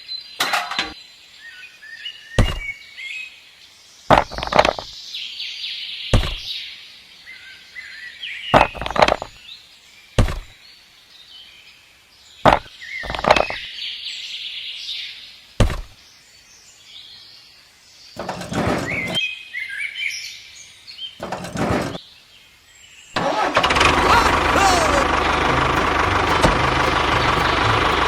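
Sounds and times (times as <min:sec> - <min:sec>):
birds chirping: 0:02.0 - 0:03.2, 0:04.1 - 0:05.1, 0:06.0 - 0:06.6, 0:08.1 - 0:10.8, 0:12.3 - 0:14.0, 0:18.1 - 0:19.3, 0:24.0 - 0:28.0
sharp knocks: 0:02.4 - 0:02.7, 0:04.1 - 0:04.9, 0:06.2 - 0:06.5, 0:08.6 - 0:09.3, 0:10.2 - 0:10.5, 0:12.5 - 0:13.6, 0:15.6 - 0:16.0, 0:25.8 - 0:28.0.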